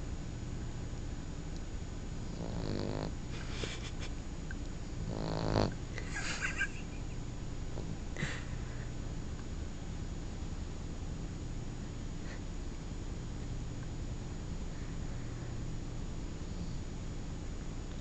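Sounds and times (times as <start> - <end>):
puppy snoring: 2.2 - 3.7, 5.0 - 5.8.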